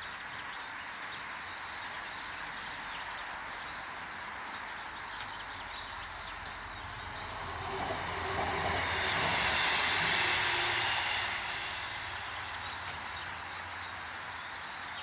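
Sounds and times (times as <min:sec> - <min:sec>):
small birds chirping: 0:00.0 - 0:15.0
passing vehicle rumble: 0:06.3 - 0:14.1.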